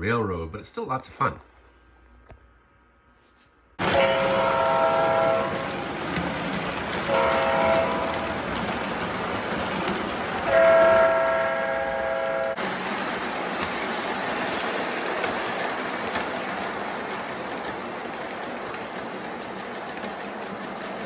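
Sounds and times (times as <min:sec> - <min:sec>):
toy train horn blasts: 0:03.8 - 0:05.6, 0:07.1 - 0:08.3, 0:10.5 - 0:12.6
toy train rolling clatter: 0:03.8 - 0:21.0.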